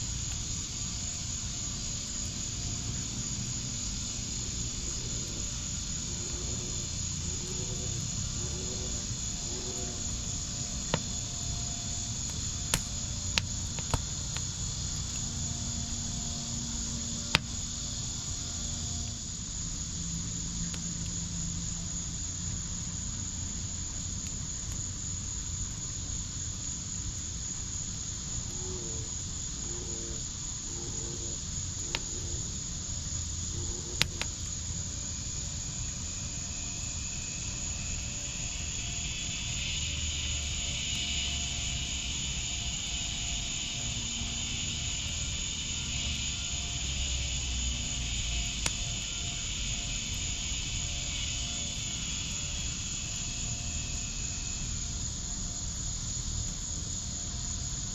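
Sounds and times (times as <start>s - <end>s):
insects chirring: 0.0s - 57.9s
wood fire crackling and popping: 12.2s - 15.2s.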